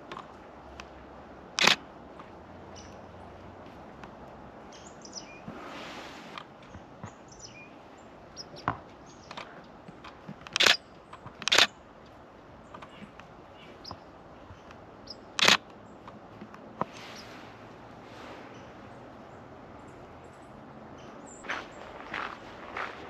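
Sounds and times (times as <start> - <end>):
small birds chirping: 0.0 - 23.0
loud sharp clicks: 1.5 - 1.8, 9.2 - 11.7, 14.6 - 16.6.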